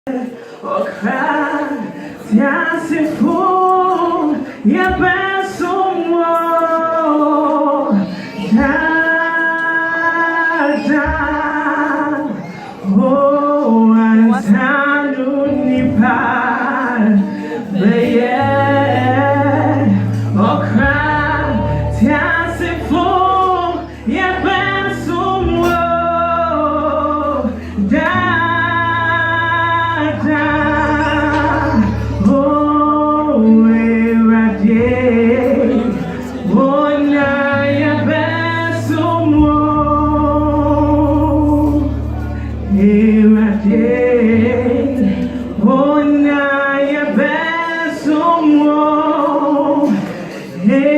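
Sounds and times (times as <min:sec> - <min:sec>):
choir singing gospel song: 0:00.1 - 0:42.1, 0:42.7 - 0:50.9
sustained bass notes: 0:17.8 - 0:46.9.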